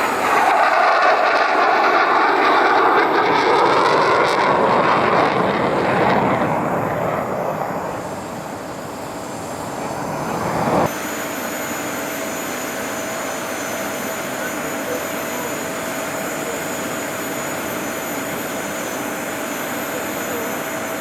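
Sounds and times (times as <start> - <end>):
jet engine roaring: 0.0 - 21.0
faint high whine: 4.6 - 21.0.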